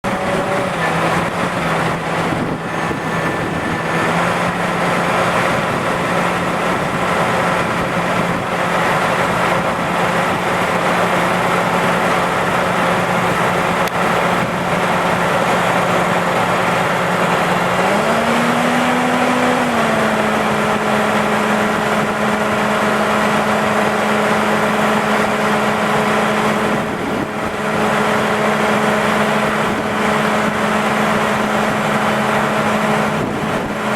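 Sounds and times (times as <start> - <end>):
diesel truck engine idling: 0.1 - 17.8.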